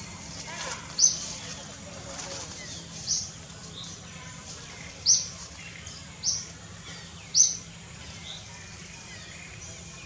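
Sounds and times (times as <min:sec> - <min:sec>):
low background hum: 0:00.0 - 0:10.0
bird chirping: 0:04.7 - 0:10.0.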